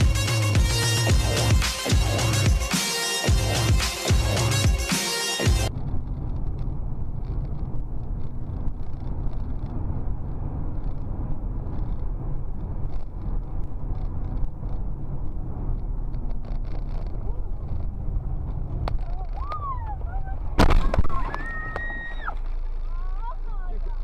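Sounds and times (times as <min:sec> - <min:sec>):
burst of music: 0:00.0 - 0:05.7
car engine and road rumble: 0:00.0 - 0:24.0.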